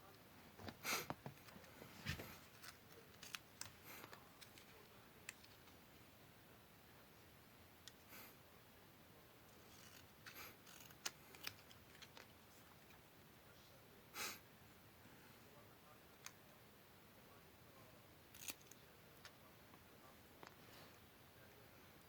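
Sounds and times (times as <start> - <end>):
scissors snipping: 2.6 - 4.7, 9.7 - 12.3, 18.4 - 18.8.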